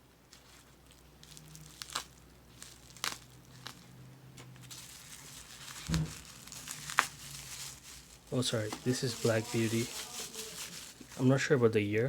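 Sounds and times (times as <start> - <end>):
crinkling plastic wrap: 0.3 - 11.8
dull thump: 5.8 - 6.2.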